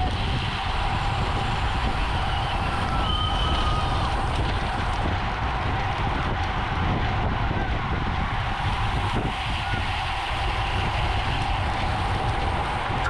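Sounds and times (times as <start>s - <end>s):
bicycle road rumble: 0.0s - 13.0s
wind rush: 0.0s - 13.0s.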